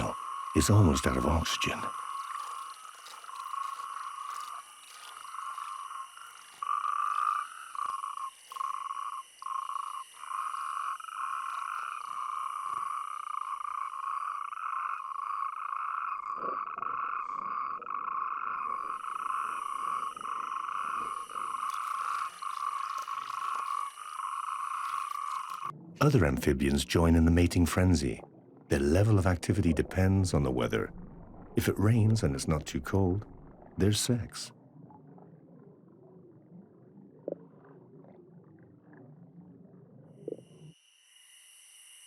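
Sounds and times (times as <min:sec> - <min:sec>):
toads churring: 0:00.0 - 0:25.7.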